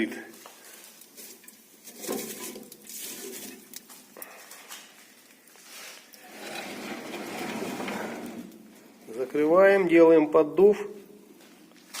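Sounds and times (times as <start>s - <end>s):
logs crackling in fireplace: 0.2s - 9.2s.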